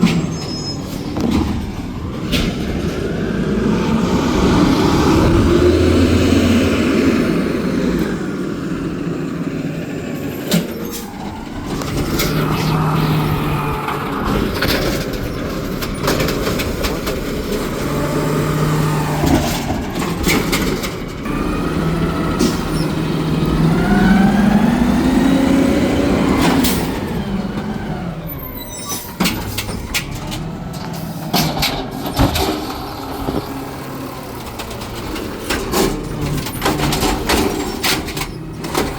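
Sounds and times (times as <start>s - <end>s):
sharp clanks and bangs: 0.0s - 3.4s, 29.0s - 33.6s
garbage truck engine revving: 0.0s - 38.9s.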